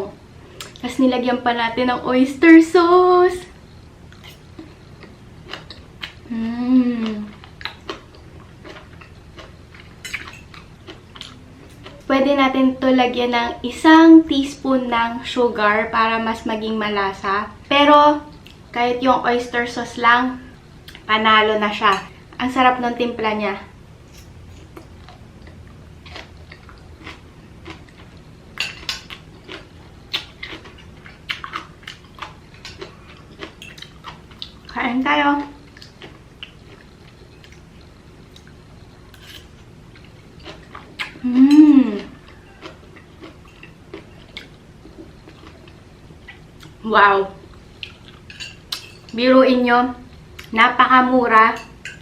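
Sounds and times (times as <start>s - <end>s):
woman humming mmm: 6.2s - 7.4s, 41.2s - 42.6s
utensils clinking on dishes: 10.0s - 10.6s, 28.6s - 29.2s, 48.2s - 49.2s, 51.5s - 52.0s.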